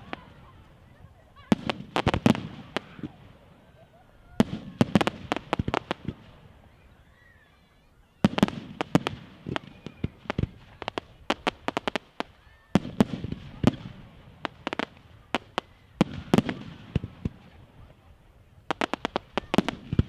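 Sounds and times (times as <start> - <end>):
fireworks cracking and banging: 0.0 - 6.8, 8.2 - 20.0.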